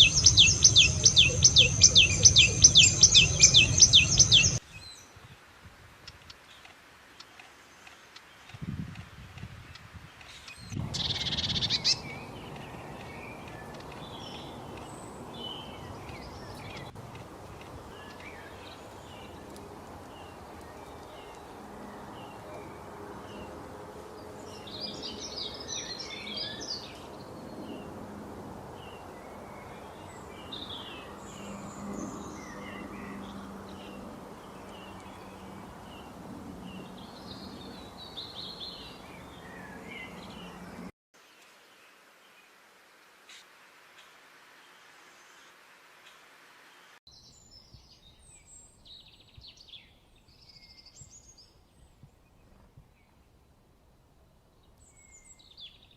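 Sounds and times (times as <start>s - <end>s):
birds chirping: 0.0s - 5.1s, 10.3s - 28.0s, 28.7s - 40.9s.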